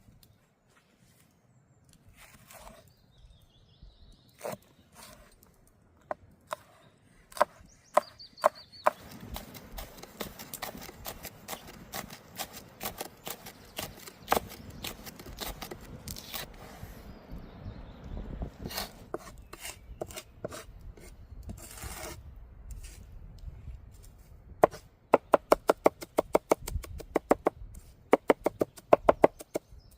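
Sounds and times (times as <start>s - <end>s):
knife chopping on wooden board: 7.3s - 16.4s.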